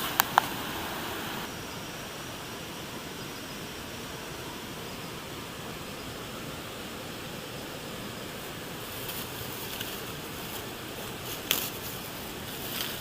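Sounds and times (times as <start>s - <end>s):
sharp clicks: 0.0s - 0.6s
insects droning: 0.0s - 13.0s.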